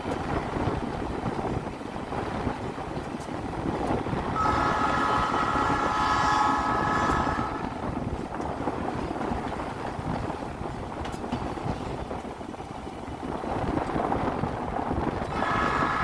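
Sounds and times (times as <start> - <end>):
passing train rumble: 0.0 - 16.0
locomotive air horn blast: 4.4 - 7.8, 15.3 - 16.0.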